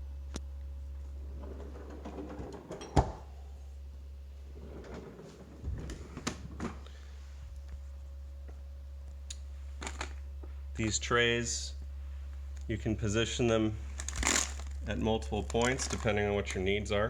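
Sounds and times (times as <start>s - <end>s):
steady low hum: 0.0s - 17.0s
plastic parts clacking: 14.0s - 16.2s
plastic knocks and clatter: 15.4s - 16.1s.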